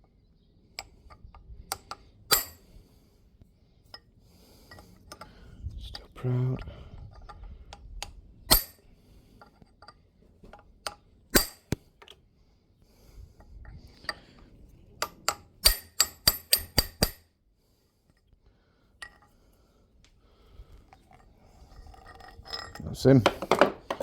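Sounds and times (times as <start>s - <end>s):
hammer striking steel: 2.3s - 2.6s, 8.5s - 8.8s, 11.4s - 11.8s, 15.3s - 17.2s.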